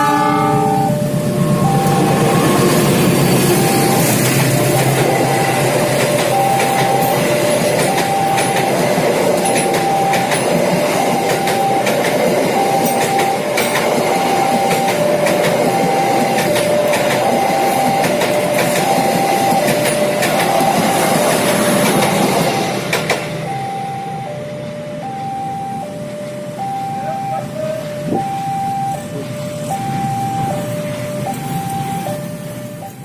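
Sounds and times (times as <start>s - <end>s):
two-tone crossing warning alarm: 0.0s - 33.0s
train wheels clicking over rail joints: 1.6s - 23.5s.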